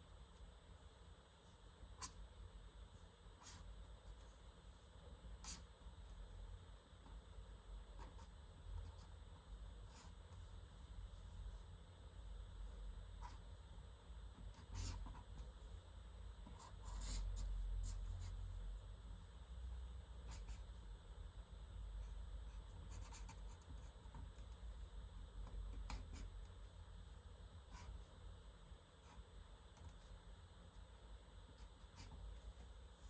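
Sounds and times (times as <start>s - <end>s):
pencil scratching on paper: 14.4s - 15.4s, 16.4s - 18.5s, 22.5s - 24.6s.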